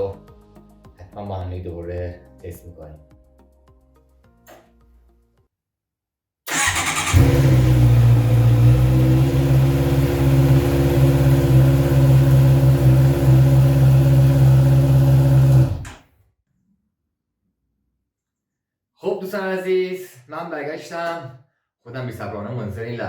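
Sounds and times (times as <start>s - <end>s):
motorcycle starter cranking: 6.5s - 9.0s.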